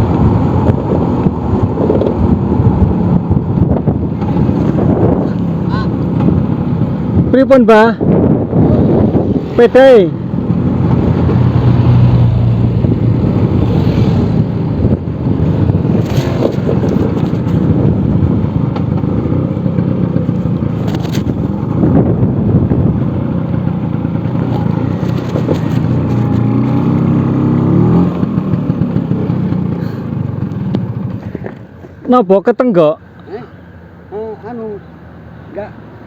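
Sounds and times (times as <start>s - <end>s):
road and wind noise: 0.0s - 36.0s
scooter engine running: 8.4s - 32.0s.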